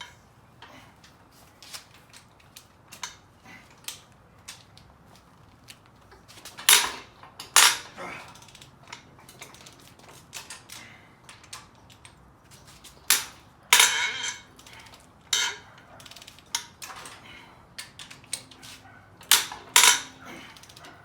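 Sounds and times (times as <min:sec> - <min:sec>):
metal tools clinking and clanking: 0:06.4 - 0:21.0.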